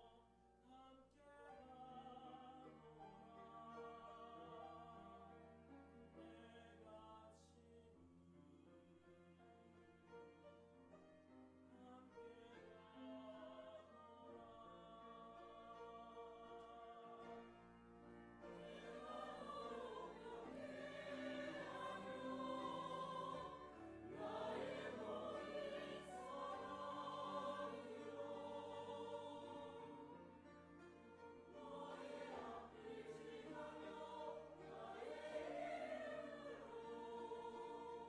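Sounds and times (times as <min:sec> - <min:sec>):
church choir singing: 0:01.7 - 0:07.5, 0:12.0 - 0:38.0.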